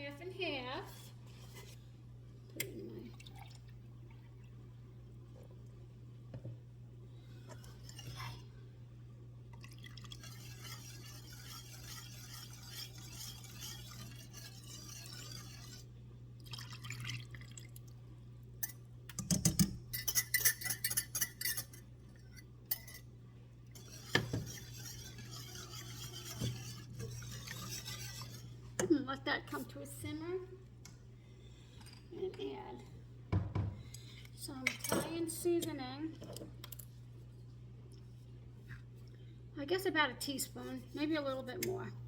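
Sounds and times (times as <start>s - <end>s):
steady low hum: 0.0s - 42.0s
liquid pouring into a pan: 16.4s - 18.0s
utensils clinking against cookware: 19.9s - 21.8s.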